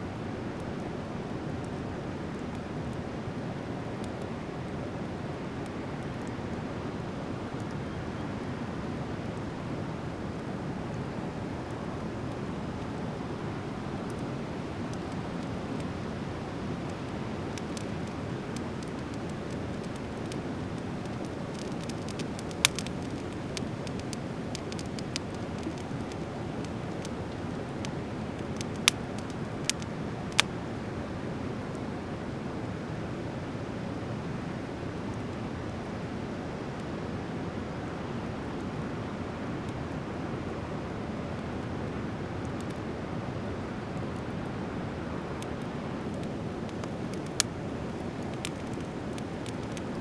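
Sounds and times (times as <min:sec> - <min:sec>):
fire crackles: 0:00.1 - 0:50.0
sharp fire pops: 0:14.0 - 0:30.6.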